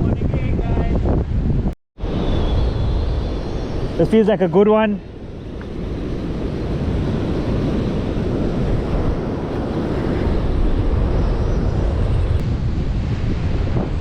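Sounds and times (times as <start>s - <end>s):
wind buffeting microphone: 0.0s - 14.0s
surf washing: 3.8s - 14.0s.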